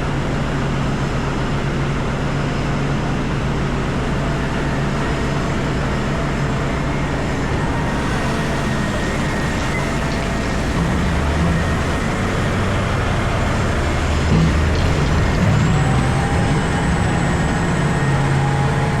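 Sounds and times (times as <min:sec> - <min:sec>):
heavy engine drone: 0:00.0 - 0:19.0
thin whine: 0:03.8 - 0:19.0.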